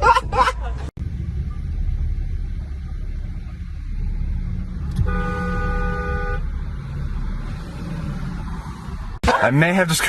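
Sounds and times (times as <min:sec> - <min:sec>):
road and engine rumble: 0:00.0 - 0:10.0
car horn blast: 0:04.9 - 0:06.5.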